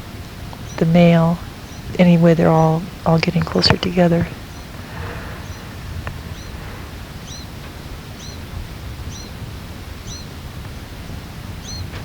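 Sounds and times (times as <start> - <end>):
low background rumble: 0.0 - 12.0
finch calling: 0.6 - 6.6, 7.2 - 9.4, 10.0 - 10.4, 11.6 - 12.0.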